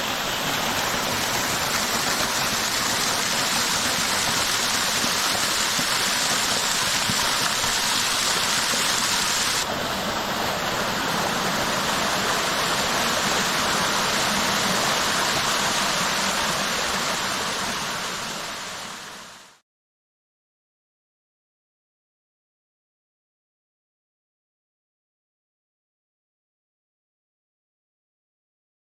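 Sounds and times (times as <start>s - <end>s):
waterfall rushing and splashing: 0.0s - 19.6s.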